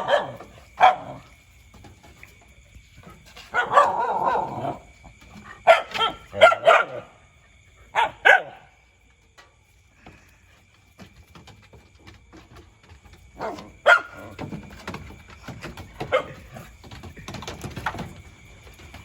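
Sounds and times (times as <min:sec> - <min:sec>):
dogs barking in play: 0:00.0 - 0:01.9, 0:03.0 - 0:08.9, 0:13.3 - 0:18.1.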